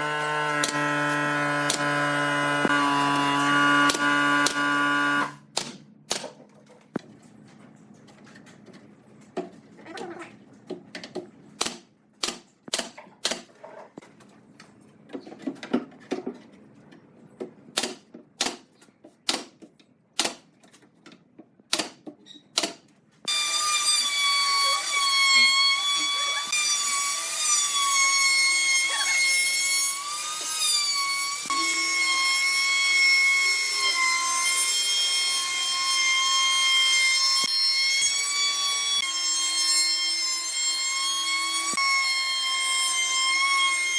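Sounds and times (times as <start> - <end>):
power tool motor whining: 0.0 - 5.4.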